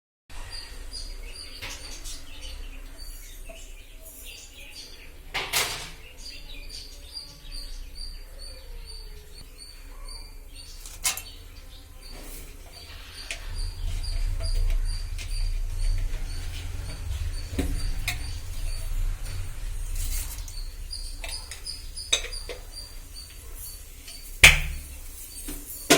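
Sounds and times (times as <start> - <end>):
bird chirping: 0.4 - 25.9
low hum: 12.8 - 25.0
sharp knocks: 24.4 - 25.0.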